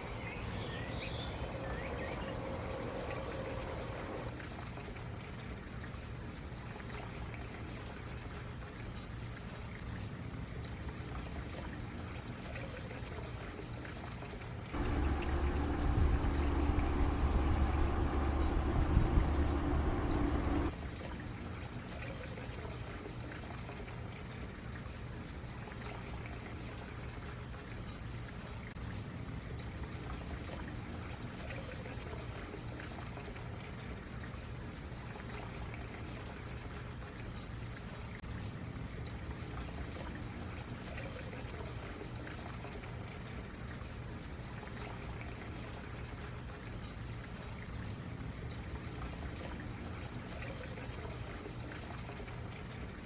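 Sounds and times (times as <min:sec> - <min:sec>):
stream trickling over rocks: 0:00.0 - 0:04.9, 0:14.7 - 0:20.8.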